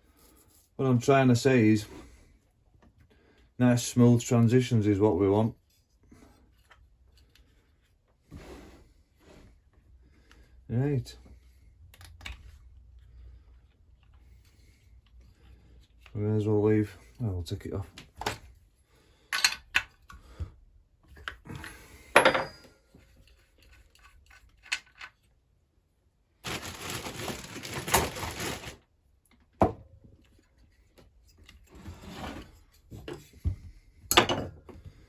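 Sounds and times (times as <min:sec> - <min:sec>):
clicks of tools and parts handled: 0:19.3 - 0:20.2, 0:21.1 - 0:25.3.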